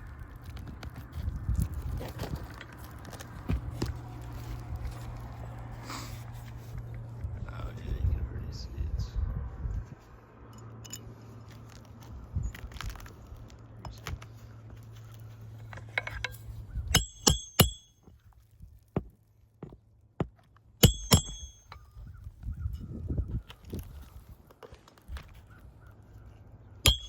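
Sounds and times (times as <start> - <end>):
sharp ringing metallic strikes: 17.0 - 17.9, 20.8 - 21.9.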